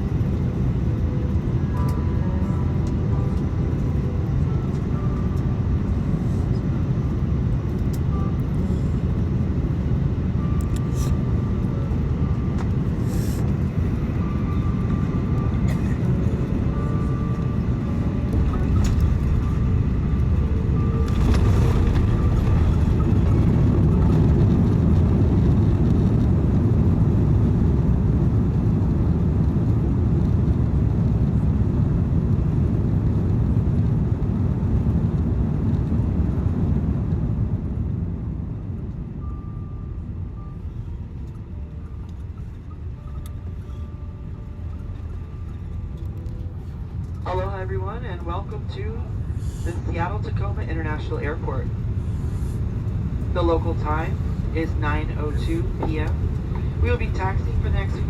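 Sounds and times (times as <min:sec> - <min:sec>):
faint whining tones: 0:00.0 - 0:26.3, 0:38.1 - 0:58.0
engines and airflow rumble: 0:00.0 - 0:58.0.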